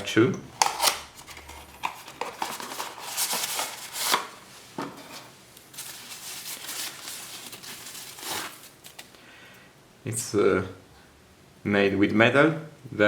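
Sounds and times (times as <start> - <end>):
packaging rustling: 0.6 - 9.2.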